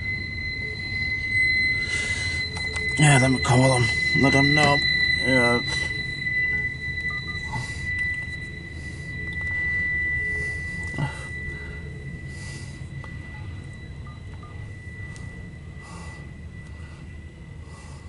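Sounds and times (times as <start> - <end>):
high-pitched electronic tone: 0.0 - 17.6
low rumble: 0.0 - 18.0.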